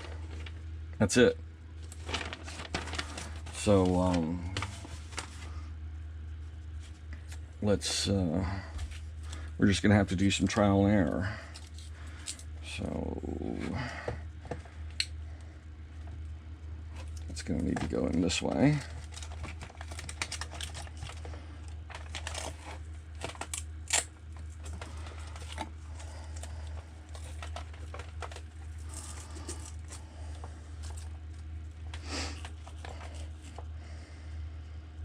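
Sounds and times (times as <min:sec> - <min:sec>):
steady low hum: 0:00.0 - 0:35.0
battery and wires rustling: 0:01.8 - 0:05.5, 0:16.9 - 0:33.8.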